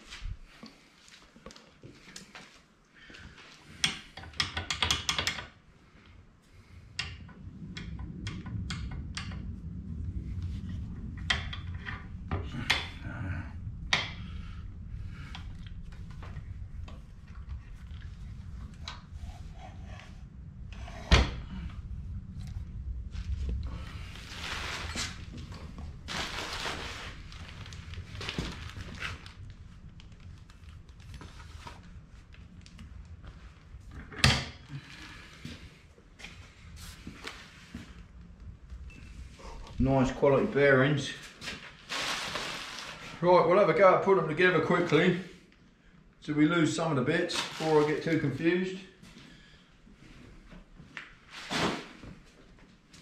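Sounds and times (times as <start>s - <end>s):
machine parts knocking and clicking: 3.8s - 5.5s
low steady rumble: 5.6s - 43.4s
packaging rustling: 24.1s - 31.6s, 41.4s - 43.2s.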